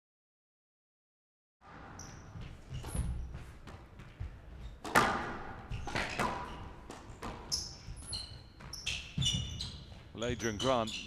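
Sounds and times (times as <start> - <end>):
shoe squeaks on court floor: 1.9 - 3.5, 5.7 - 11.0
squash ball cracking off racket: 4.8 - 7.6.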